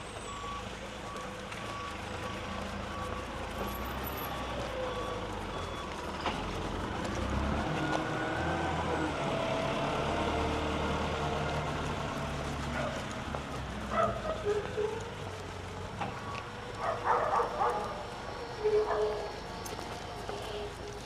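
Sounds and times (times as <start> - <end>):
truck reversing alarm beeping: 0.0 - 13.1, 13.9 - 21.0
truck engine rumble: 0.0 - 21.0.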